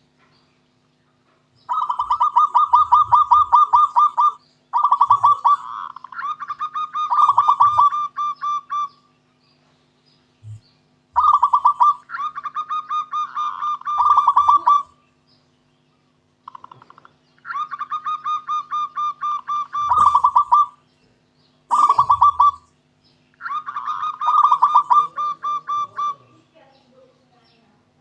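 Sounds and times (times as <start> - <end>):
dove cooing: 1.6 - 9.1, 10.4 - 15.0, 16.4 - 20.8, 21.7 - 22.8, 23.4 - 26.7.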